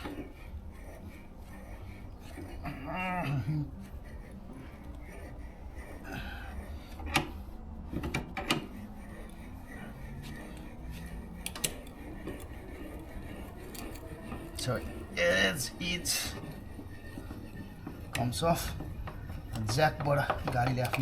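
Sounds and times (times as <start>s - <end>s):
low steady hum: 0.0s - 21.0s
metallic tool clicks and knocks: 10.1s - 15.1s, 17.8s - 21.0s.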